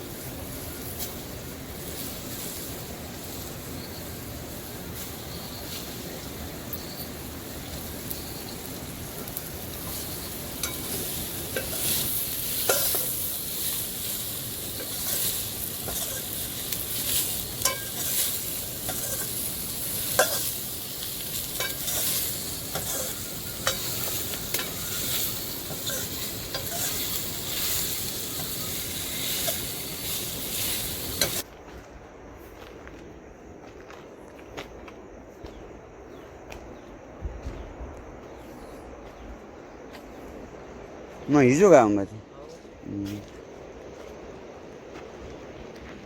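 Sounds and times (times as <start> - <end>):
food sizzling in a pan: 0.0 - 31.4
spoon scraping and tapping pan: 17.6 - 18.2, 20.1 - 20.5.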